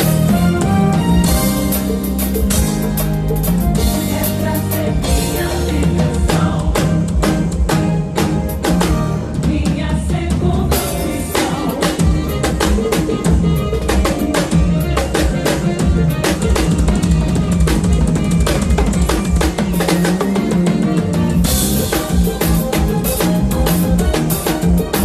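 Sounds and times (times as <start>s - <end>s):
band music with bass line: 0.0s - 25.0s
drum kit playing fast: 0.0s - 25.0s.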